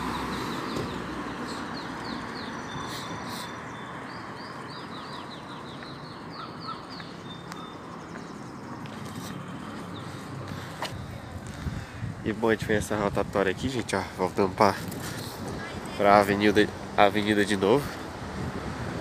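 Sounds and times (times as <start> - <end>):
bird singing downward chirps: 0.0 - 8.8.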